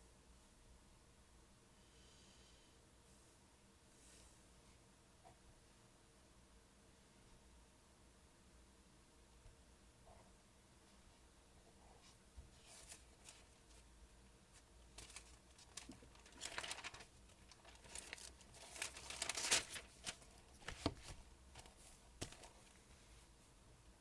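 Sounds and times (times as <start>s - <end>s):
paper rustling and crinkling: 12.5s - 13.9s, 14.5s - 23.2s.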